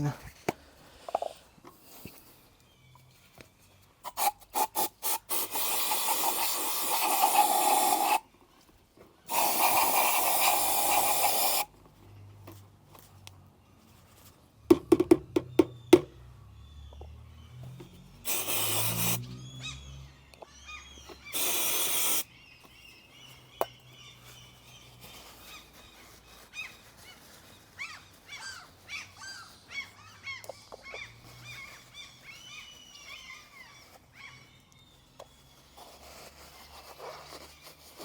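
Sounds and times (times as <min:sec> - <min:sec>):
aerosol can spraying: 0:04.0 - 0:08.2, 0:09.3 - 0:11.7, 0:18.2 - 0:19.3, 0:21.2 - 0:22.3
birds chirping: 0:14.6 - 0:37.6.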